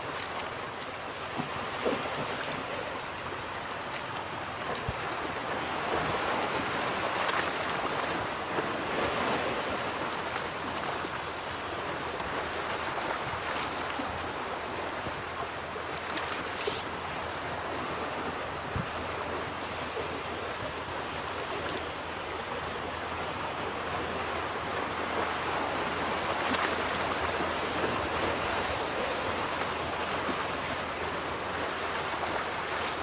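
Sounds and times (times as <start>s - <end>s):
brief high hiss: 16.4s - 16.9s.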